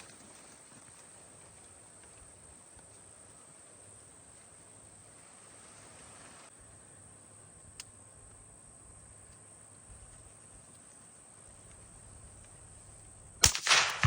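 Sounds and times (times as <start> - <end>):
insects droning: 0.0 - 14.0
low hiss: 0.0 - 14.0.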